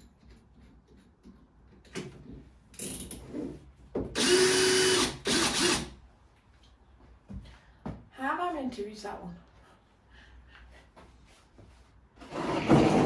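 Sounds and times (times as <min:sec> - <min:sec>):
cordless drill motor whine: 0:04.2 - 0:05.9.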